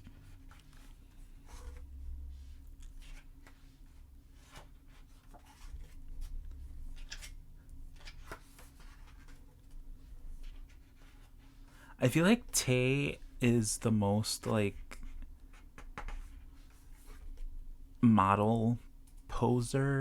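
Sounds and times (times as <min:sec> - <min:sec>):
book pages turning: 0:00.0 - 0:11.5
low steady hum: 0:00.0 - 0:20.0.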